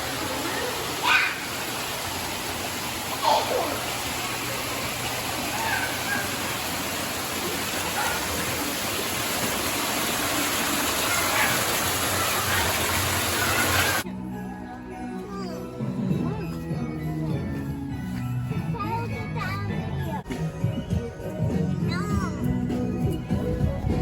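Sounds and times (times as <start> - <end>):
rush of falling water: 0.0 - 14.0.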